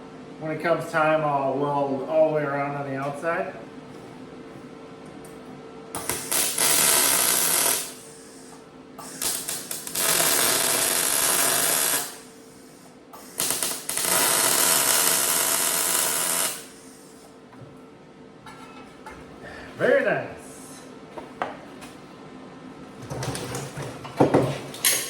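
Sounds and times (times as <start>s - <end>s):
welding arc crackling buzz: 5.9s - 17.3s.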